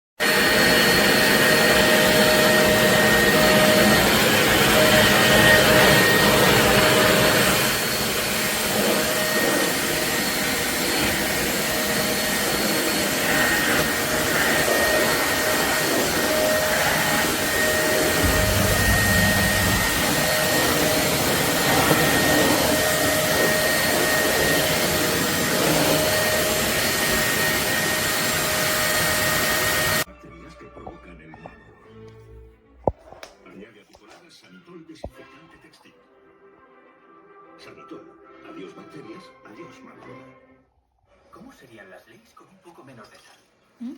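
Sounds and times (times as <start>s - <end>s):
vacuum cleaner running: 0.2s - 30.1s
brief low rumble: 18.2s - 20.2s.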